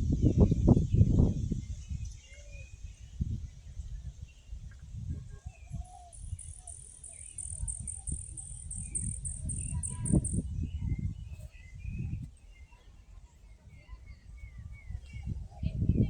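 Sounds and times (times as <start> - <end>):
low rumble on microphone: 0.0 - 6.7, 7.4 - 16.0
insect chirping: 5.7 - 12.2.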